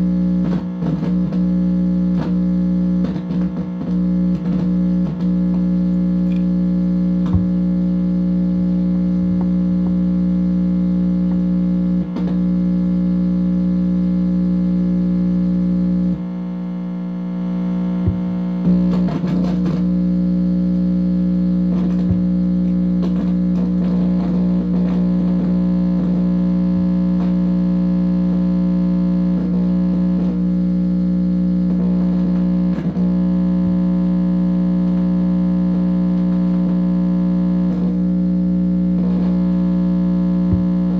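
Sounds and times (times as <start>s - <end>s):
electronic interference buzz: 0.0s - 40.9s
electronic clicks: 5.2s - 6.6s.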